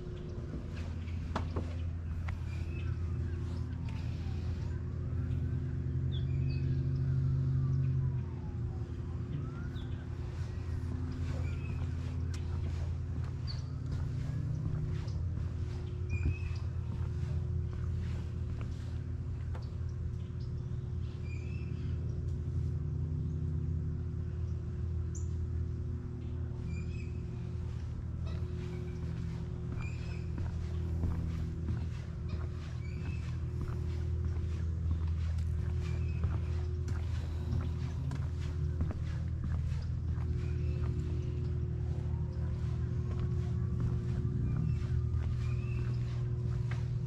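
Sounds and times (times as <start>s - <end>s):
low mechanical hum: 0.0s - 47.0s
emergency vehicle siren wailing: 2.2s - 17.4s
bird chirps: 9.3s - 18.2s, 26.6s - 46.9s.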